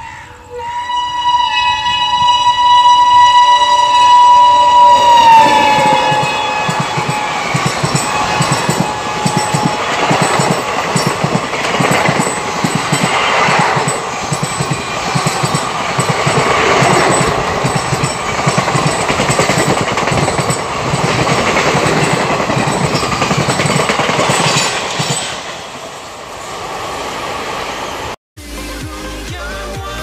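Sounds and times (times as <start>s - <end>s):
train wheels clattering on track: 4.8s - 26.2s.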